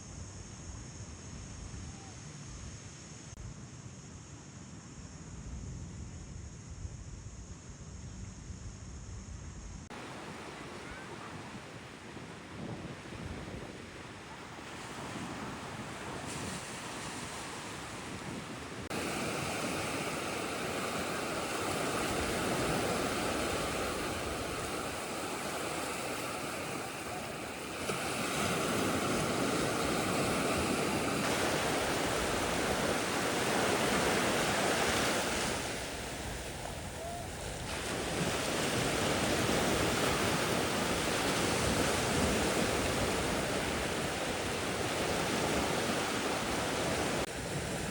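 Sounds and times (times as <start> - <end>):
sea waves washing on shore: 9.9 - 47.9
wind on microphone: 9.9 - 47.9.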